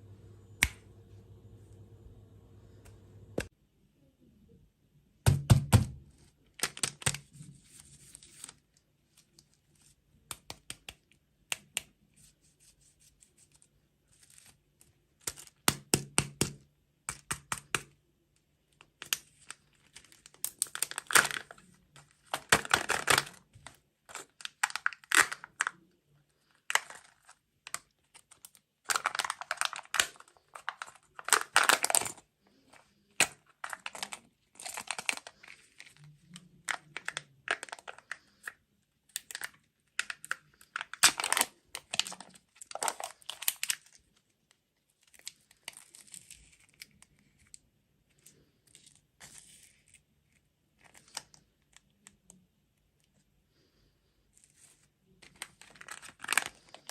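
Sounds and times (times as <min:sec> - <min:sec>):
plastic packaging crinkling and tearing: 0:06.4 - 0:10.0, 0:18.8 - 0:52.4, 0:54.4 - 0:56.9.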